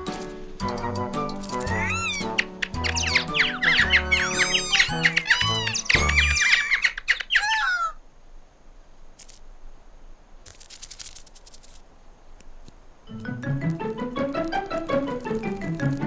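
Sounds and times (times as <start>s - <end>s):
cartoon birds chattering: 0.0s - 8.0s
flutters or rustles: 0.0s - 8.0s, 10.4s - 11.9s, 13.6s - 16.0s.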